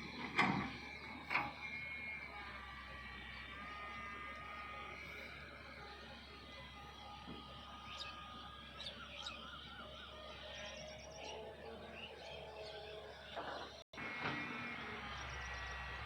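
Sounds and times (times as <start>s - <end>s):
bird chirps: 7.8s - 13.8s.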